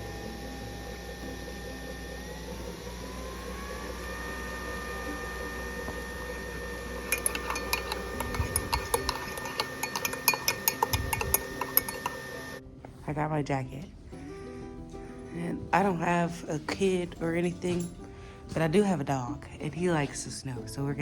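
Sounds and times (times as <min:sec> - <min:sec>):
soft held tones: 0:00.0 - 0:12.6.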